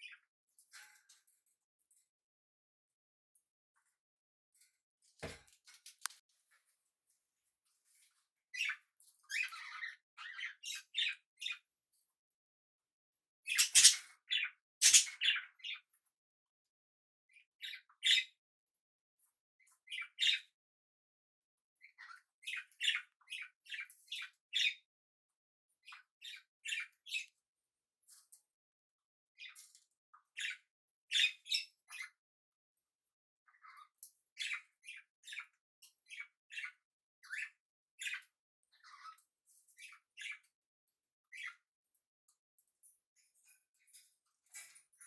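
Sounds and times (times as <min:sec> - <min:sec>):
parrots chirping and squawking: 0:13.5 - 0:15.4.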